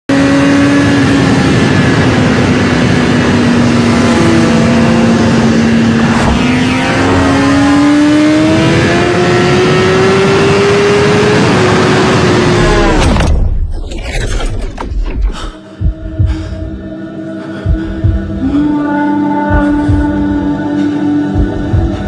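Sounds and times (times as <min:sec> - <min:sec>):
motorcycle engine at high revs: 0:00.1 - 0:13.2.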